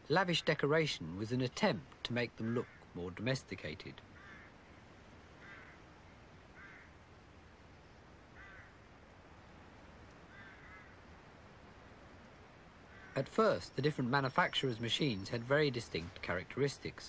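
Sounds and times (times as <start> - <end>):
low hiss: 0.0 - 17.0
short bird calls: 4.1 - 7.0, 7.7 - 8.8, 10.2 - 11.1, 12.8 - 13.8.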